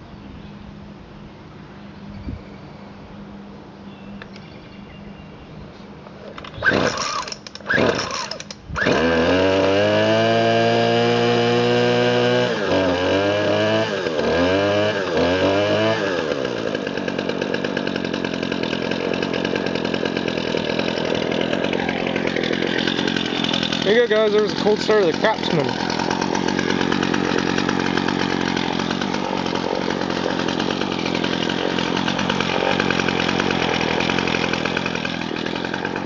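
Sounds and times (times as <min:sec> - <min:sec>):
string trimmer engine revving: 0:06.2 - 0:36.0
pull-cord bursts: 0:06.3 - 0:13.2, 0:15.0 - 0:36.0.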